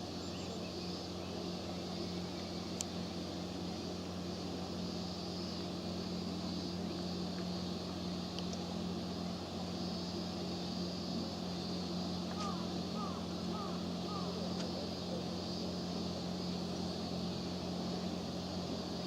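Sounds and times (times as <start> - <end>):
ferry engine drone: 0.0 - 19.0
wind: 0.0 - 19.0.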